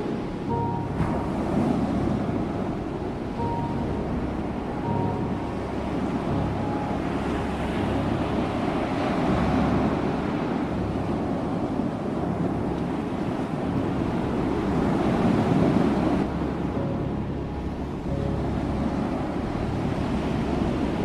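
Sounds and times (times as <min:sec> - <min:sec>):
ocean waves breaking on shore: 0:00.0 - 0:21.0.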